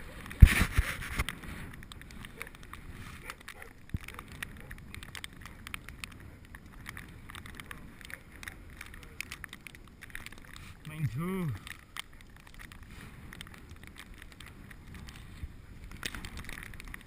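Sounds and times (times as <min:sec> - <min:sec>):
bicycle clicks and rattles: 0:00.0 - 0:17.0
bicycle tyres rumbling on snow: 0:00.0 - 0:17.0
wind on microphone: 0:00.0 - 0:17.0.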